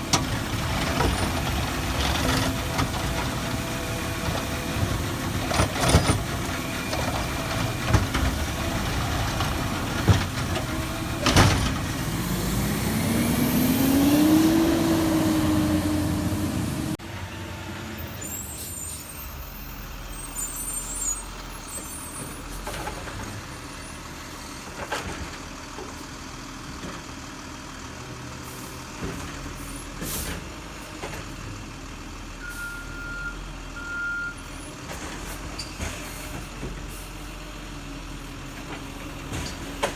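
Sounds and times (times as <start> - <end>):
garbage truck engine revving: 0.0 - 23.5.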